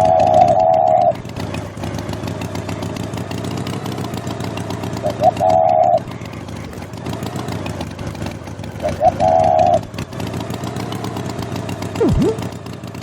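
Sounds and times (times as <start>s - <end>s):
engine rumbling: 0.0s - 13.0s
loud steady hoot: 5.2s - 6.0s
short rising blip: 12.0s - 12.5s.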